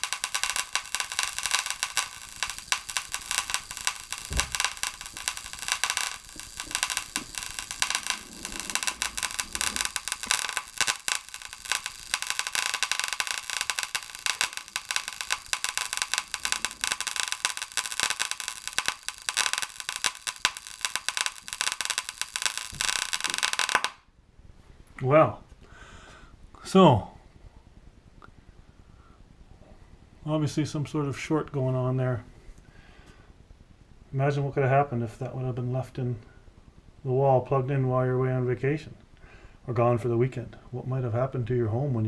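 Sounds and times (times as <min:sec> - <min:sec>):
circuit board crackling and popping: 0:00.0 - 0:24.1.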